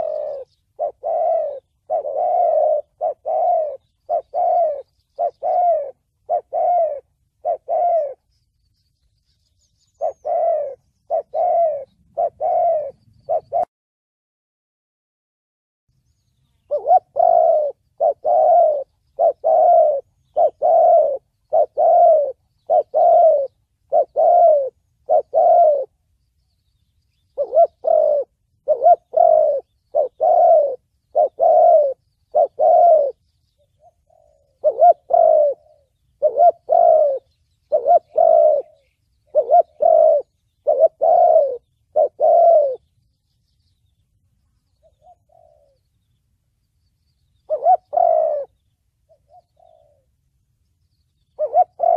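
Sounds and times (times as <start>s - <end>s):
dove cooing: 0.0s - 8.3s, 9.8s - 13.7s, 16.6s - 26.1s, 27.1s - 42.9s, 44.7s - 46.1s, 47.3s - 50.2s, 51.2s - 51.9s.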